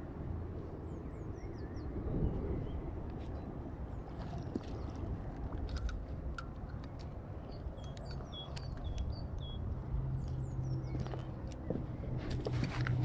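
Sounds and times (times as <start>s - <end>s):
low wind rumble: 0.0s - 13.0s
bird chirping: 0.9s - 5.1s, 6.7s - 12.6s
scattered clicks: 4.4s - 9.6s.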